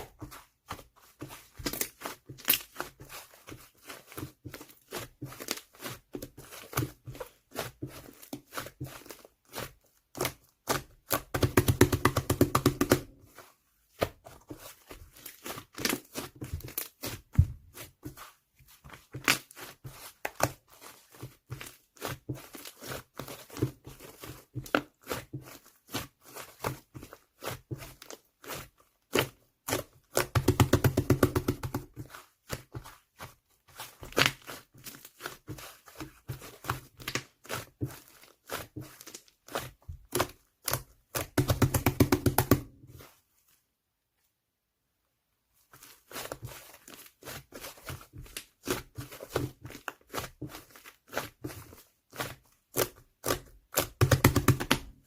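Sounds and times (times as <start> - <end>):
slime crackling and popping: 1.6 - 2.9.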